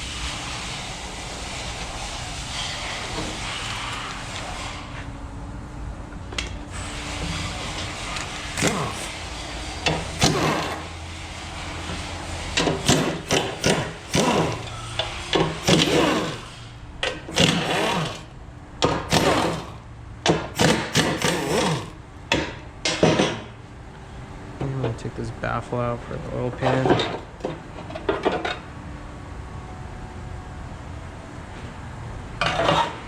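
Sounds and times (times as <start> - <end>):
power tool motor bursts: 6.7 - 11.0, 12.6 - 19.8, 20.4 - 22.0.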